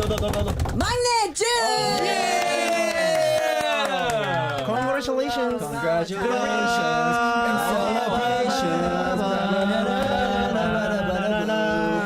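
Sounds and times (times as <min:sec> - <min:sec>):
people singing a cappella: 0:05.4 - 0:12.0.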